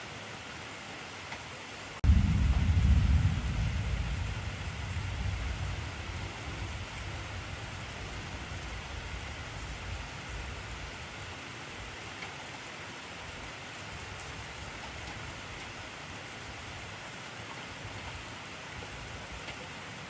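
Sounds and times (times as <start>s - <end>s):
heavy rain falling: 0.3s - 20.0s
low rumble: 2.0s - 10.9s.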